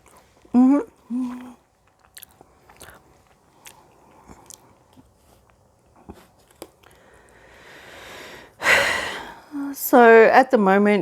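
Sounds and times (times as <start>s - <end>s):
mouth chewing food: 0.0s - 7.5s
wet mouth clicks and smacks: 1.3s - 5.6s
person breathing: 6.8s - 9.6s.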